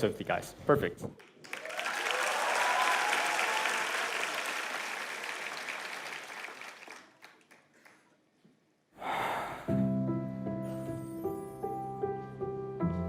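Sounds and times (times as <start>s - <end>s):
audience applauding: 1.2s - 8.1s.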